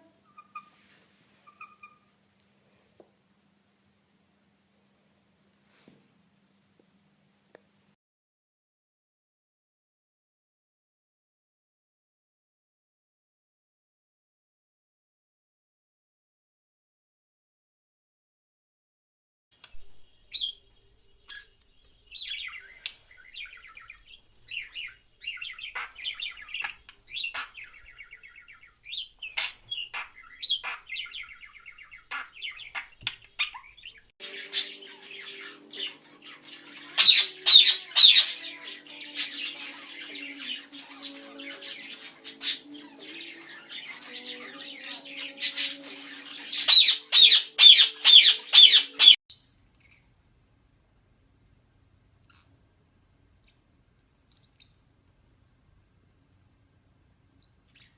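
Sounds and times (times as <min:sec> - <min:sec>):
birds chirping and twittering: 0:01.4 - 0:02.1, 0:19.6 - 0:49.2
harsh bird squawks: 0:01.4 - 0:02.1, 0:28.9 - 0:49.2.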